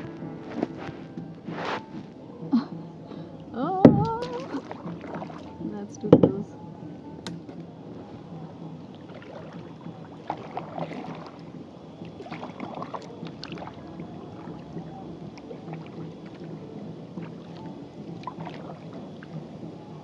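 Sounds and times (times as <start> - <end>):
paddle strokes splashing in water: 0.0 - 20.0.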